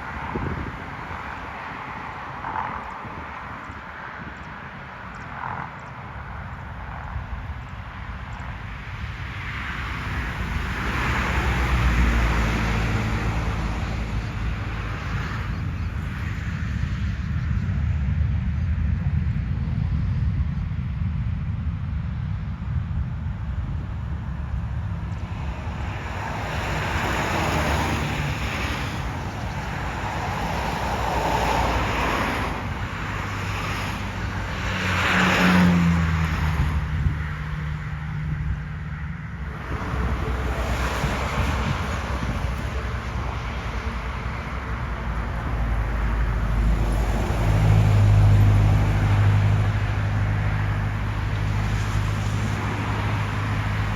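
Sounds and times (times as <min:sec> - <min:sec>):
jet engines rushing: 0:00.0 - 0:53.9
vehicle passing by: 0:09.0 - 0:16.9, 0:24.0 - 0:53.9.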